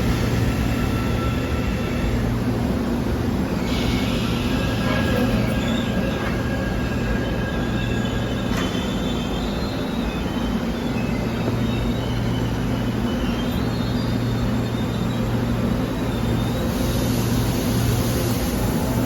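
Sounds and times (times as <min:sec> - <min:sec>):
electric train rumbling: 0:00.0 - 0:19.0.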